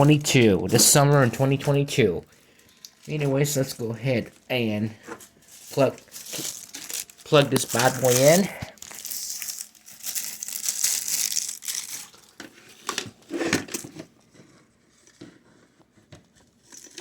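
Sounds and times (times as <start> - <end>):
power cord rustling and crinkling: 0.0 - 15.4.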